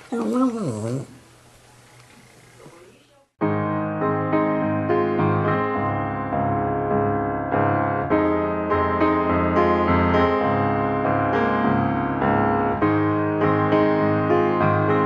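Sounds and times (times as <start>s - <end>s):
piano music: 3.4s - 15.0s.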